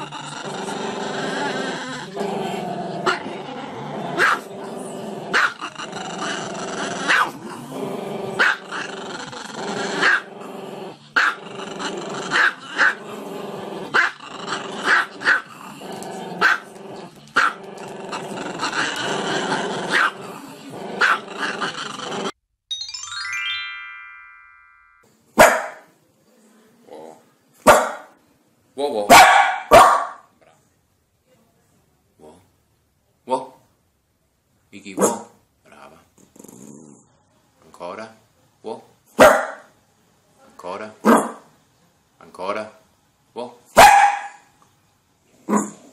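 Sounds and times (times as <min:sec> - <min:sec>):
dog yapping: 0:07.1 - 0:07.4, 0:29.1 - 0:30.2, 0:39.2 - 0:39.6, 0:43.8 - 0:44.4.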